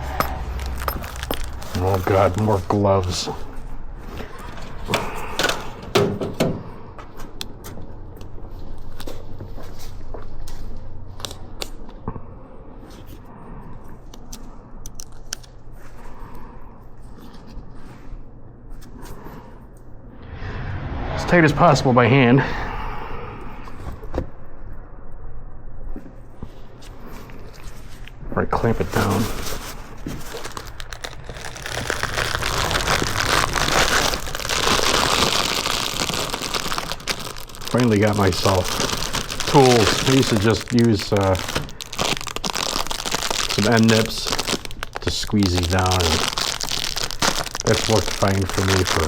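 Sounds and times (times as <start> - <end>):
crinkling rustling handling noise: 0.0 - 3.4, 28.6 - 49.0.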